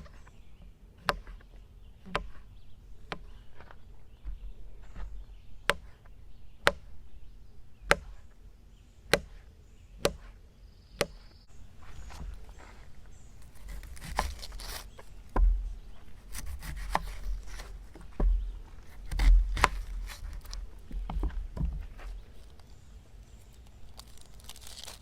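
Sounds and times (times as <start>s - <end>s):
knife chopping on a board: 1.0s - 2.4s, 3.1s - 6.9s, 7.8s - 8.3s, 9.1s - 10.4s, 11.0s - 11.3s, 13.6s - 22.0s
knife cutting and scraping: 11.0s - 21.1s.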